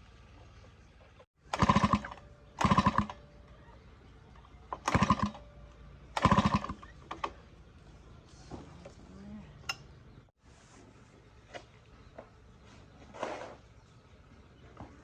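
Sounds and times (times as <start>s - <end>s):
power tool rattling: 1.4s - 3.4s, 4.6s - 7.4s.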